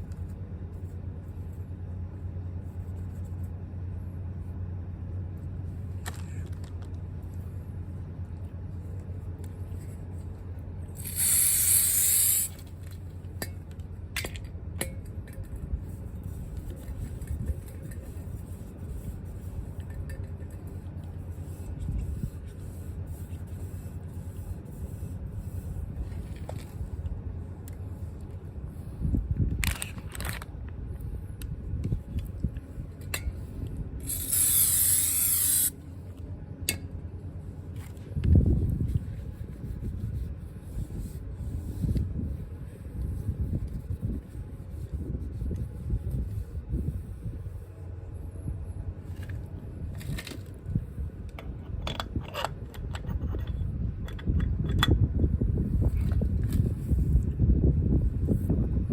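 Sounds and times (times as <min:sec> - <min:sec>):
pressurised spray hissing: 0:11.0 - 0:12.6, 0:34.0 - 0:35.7.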